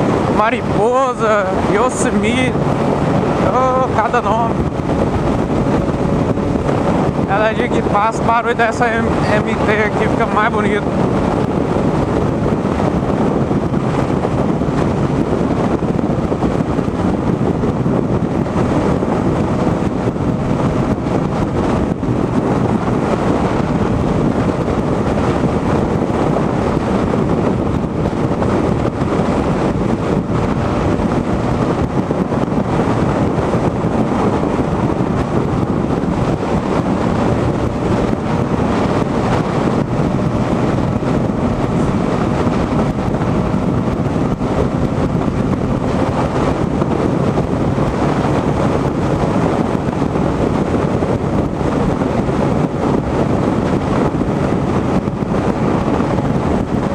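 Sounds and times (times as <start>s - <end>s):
motorcycle engine drone: 0.0s - 56.9s
wind noise on microphone: 0.0s - 56.9s.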